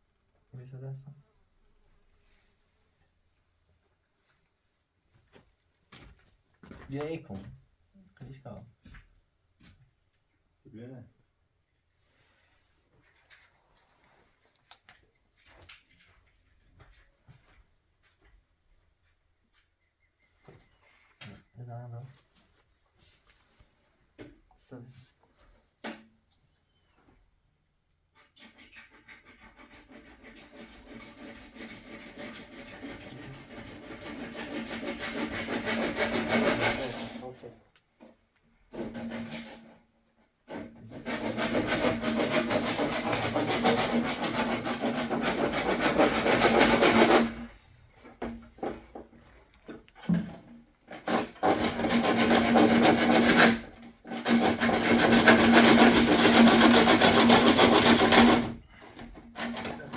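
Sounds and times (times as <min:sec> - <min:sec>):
tool scraping hard material: 0:28.2 - 0:37.5, 0:38.7 - 0:39.9, 0:40.5 - 0:48.8, 0:50.0 - 0:59.9.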